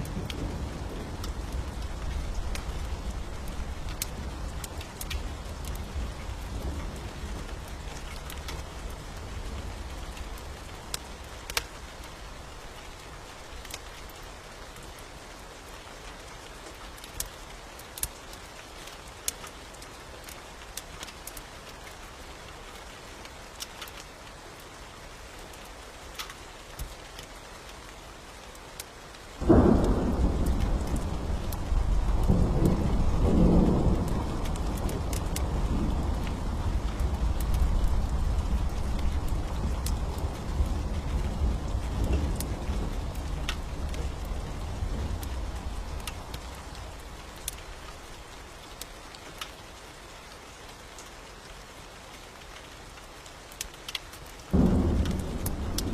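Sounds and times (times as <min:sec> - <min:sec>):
steady rain: 0:00.0 - 0:55.9
rumbling thunderclap: 0:29.4 - 0:46.3, 0:54.5 - 0:55.9
sharp crackles: 0:53.5 - 0:55.9.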